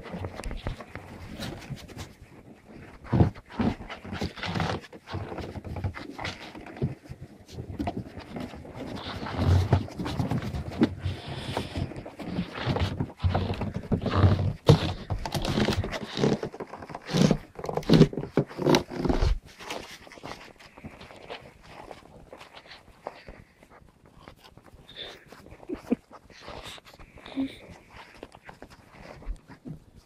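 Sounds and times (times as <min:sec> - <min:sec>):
puppies panting: 0:22.6 - 0:29.7.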